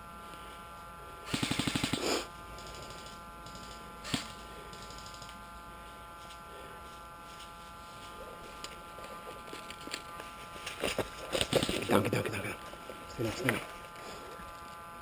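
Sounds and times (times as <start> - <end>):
high electrical whine: 0.0 - 15.0
airsoft gun shot: 1.3 - 2.2, 4.0 - 4.4
distant airsoft gunfire: 1.3 - 5.3.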